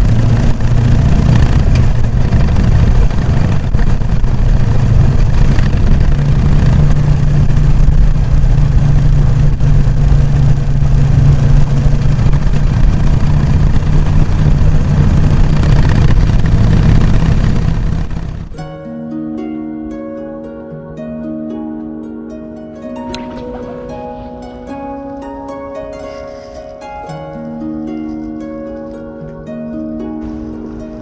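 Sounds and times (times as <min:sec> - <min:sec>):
motorcycle engine running: 0:00.0 - 0:18.7.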